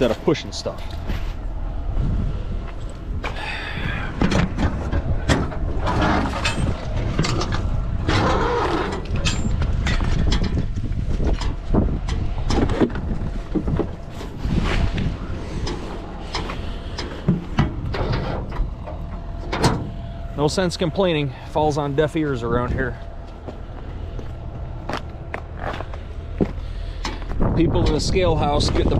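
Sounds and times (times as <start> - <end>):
truck engine idling: 0.0 - 28.4
knocks and clanks: 4.1 - 20.1.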